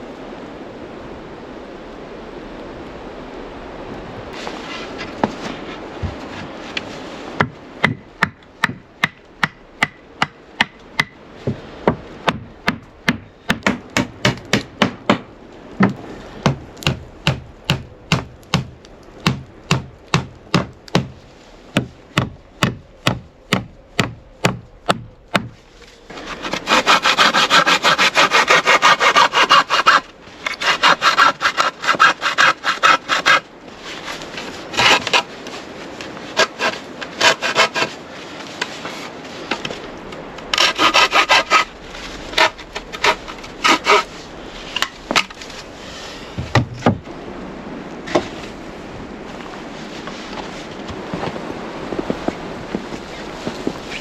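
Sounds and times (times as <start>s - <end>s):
hand tool scraping wood: 25.3s - 35.6s, 36.2s - 39.8s, 40.4s - 47.0s.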